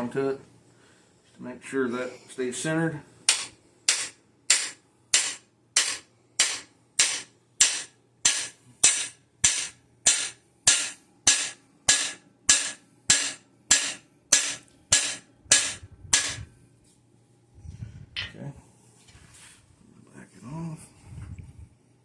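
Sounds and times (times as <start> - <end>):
hammer striking metal driver: 3.3 - 16.4.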